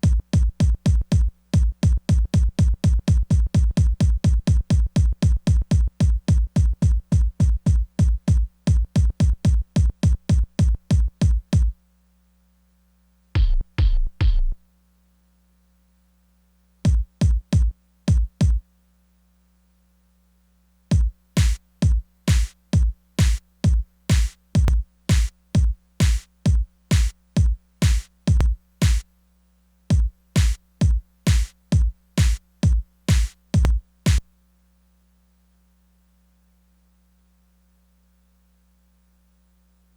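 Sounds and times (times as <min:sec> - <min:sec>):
drum machine beat: 0:00.0 - 0:11.8, 0:13.4 - 0:14.6, 0:16.9 - 0:18.6, 0:20.9 - 0:29.1, 0:29.9 - 0:34.3.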